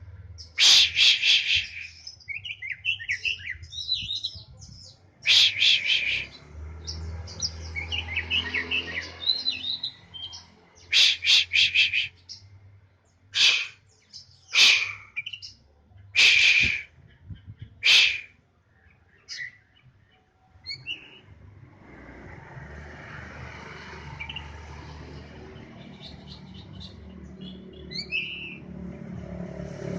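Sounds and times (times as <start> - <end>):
bird calling harsh notes: 0.4 - 4.0, 5.2 - 6.4, 7.3 - 12.5, 13.3 - 18.4.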